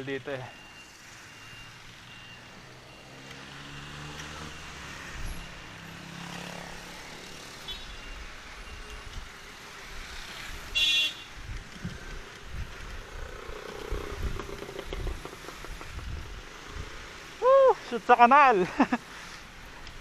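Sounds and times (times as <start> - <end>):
short high-pitched car horn beep: 7.7 - 8.2, 10.8 - 11.3
vehicle engine droning: 11.7 - 17.2.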